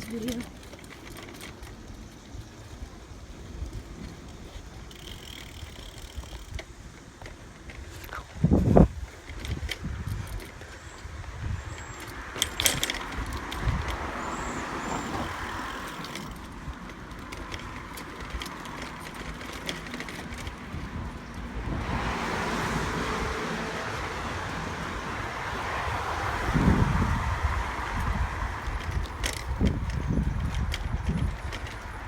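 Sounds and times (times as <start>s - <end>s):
bicycle tyre rumble: 0.0s - 32.0s
wind on microphone: 8.2s - 16.8s, 20.2s - 32.0s
clicks and rattles: 15.8s - 21.4s.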